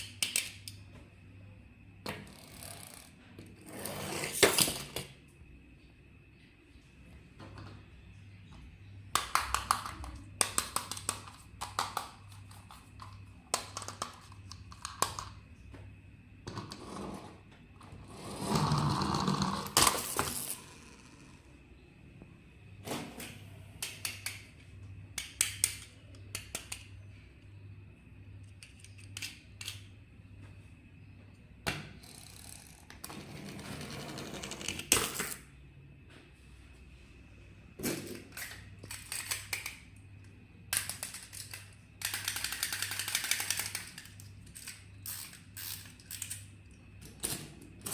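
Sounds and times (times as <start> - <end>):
plastic toy parts clicking: 0.0 - 0.8, 9.1 - 15.4, 23.8 - 24.6, 25.2 - 27.0, 28.4 - 29.8, 38.3 - 39.9, 40.7 - 46.5
faint steady hum: 0.0 - 47.9.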